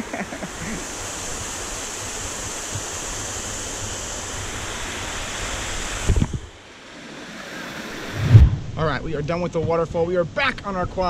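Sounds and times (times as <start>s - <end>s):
waterfall rushing: 0.0s - 9.1s
low thump: 8.0s - 9.0s.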